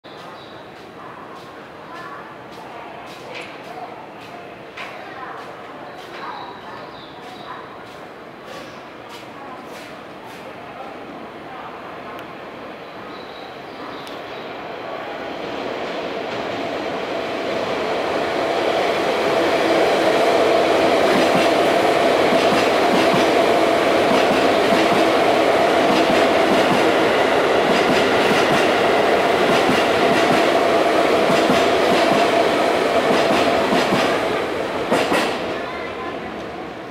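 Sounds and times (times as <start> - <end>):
electric train passing: 11.8 - 36.9
train wheel clacks: 20.8 - 35.6.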